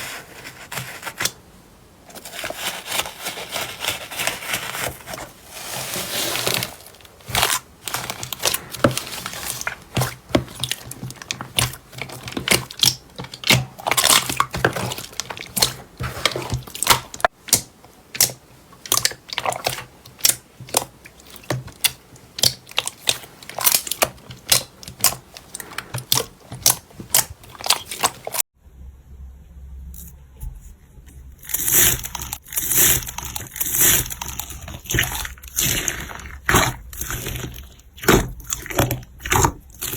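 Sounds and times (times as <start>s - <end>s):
low hum: 28.6s - 31.4s
slime crackling and popping: 31.4s - 39.9s.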